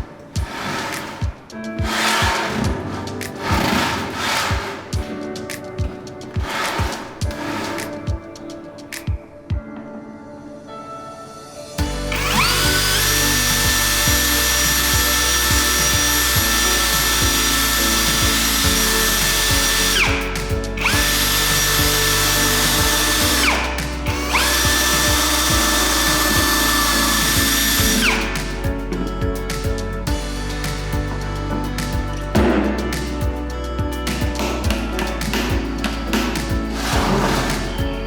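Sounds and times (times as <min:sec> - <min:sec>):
small electric motor whining: 0:12.1 - 0:28.6.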